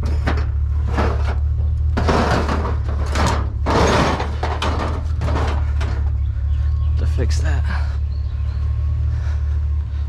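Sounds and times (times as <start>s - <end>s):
metal scraping and clunking: 0.0s - 6.5s
steady low hum: 0.0s - 10.0s.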